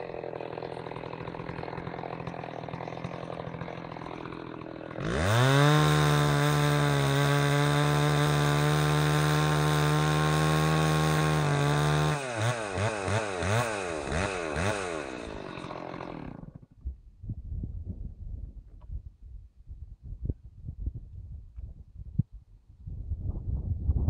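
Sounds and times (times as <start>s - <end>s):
chainsaw revving: 0.0s - 16.7s
chainsaw cutting tree trunk: 0.0s - 16.8s.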